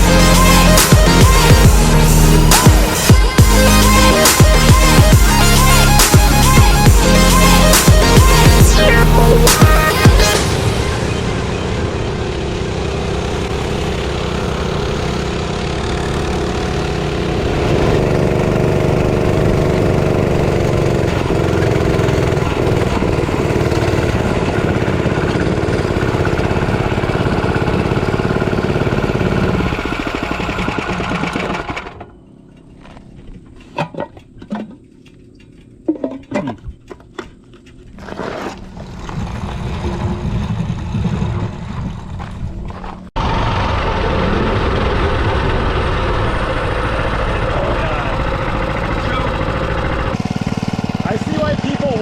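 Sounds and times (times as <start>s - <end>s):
small engine running: 0.0s - 33.7s, 36.8s - 52.0s.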